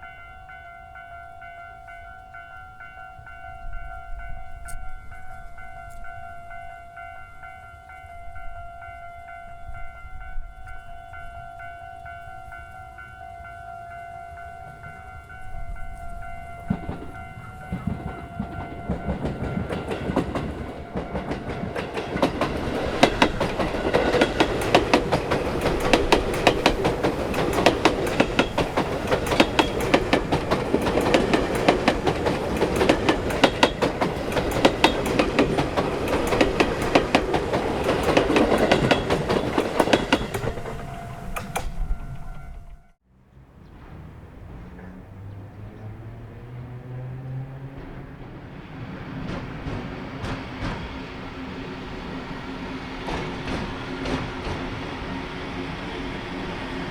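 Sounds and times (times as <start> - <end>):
train wheels clattering over rails: 16.6 - 42.7, 43.8 - 56.9.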